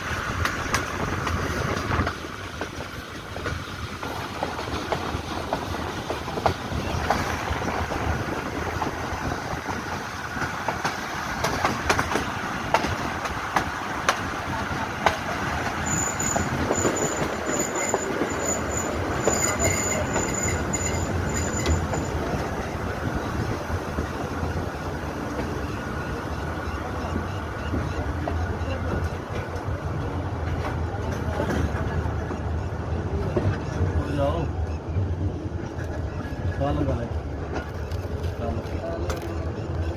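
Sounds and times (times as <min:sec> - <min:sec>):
wheels clicking over rail joints: 0:00.0 - 0:34.0
train rumbling on rails: 0:00.0 - 0:39.9
wheels squealing on curve: 0:15.7 - 0:22.4.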